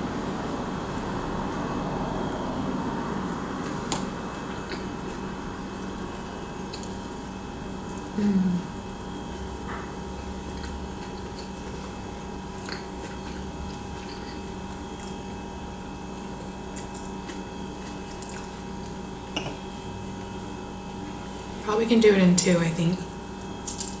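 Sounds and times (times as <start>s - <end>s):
electrical hum: 0.0s - 24.0s
person humming mmm: 8.1s - 8.8s
close chewing: 16.2s - 19.0s.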